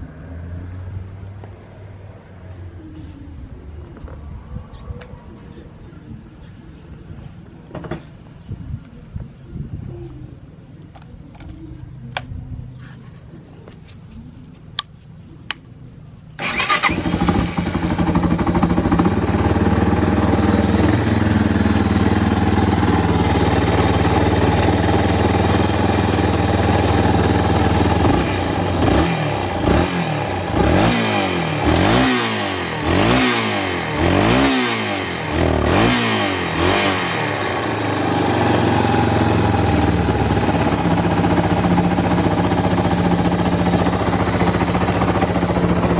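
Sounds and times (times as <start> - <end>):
motorcycle engine idling and revving: 15.8 - 45.9.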